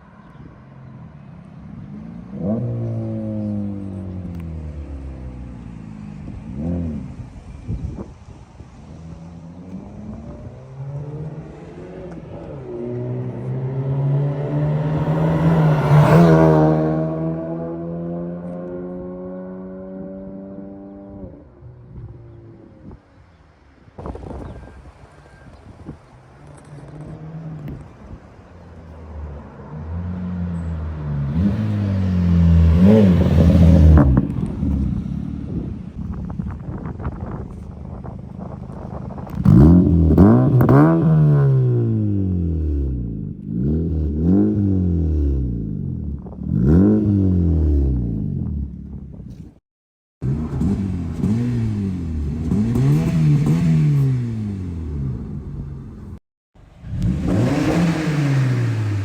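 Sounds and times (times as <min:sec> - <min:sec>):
car engine and exhaust: 0:00.0 - 0:49.6, 0:50.2 - 0:59.0.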